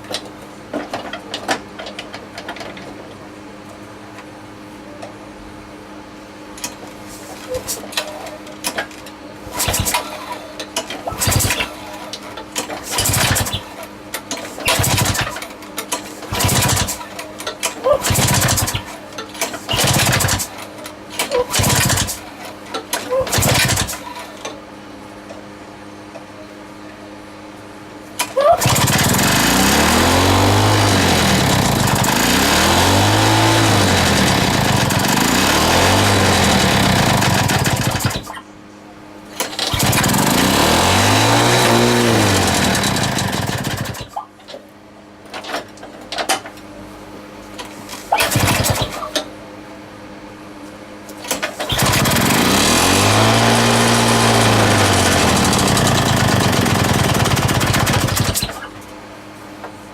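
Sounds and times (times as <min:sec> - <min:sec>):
lawn mower engine running: 0:11.0 - 0:20.6, 0:21.2 - 0:22.3, 0:23.3 - 0:24.3, 0:28.6 - 0:38.3, 0:39.4 - 0:44.2, 0:48.2 - 0:49.1, 0:51.4 - 0:58.7.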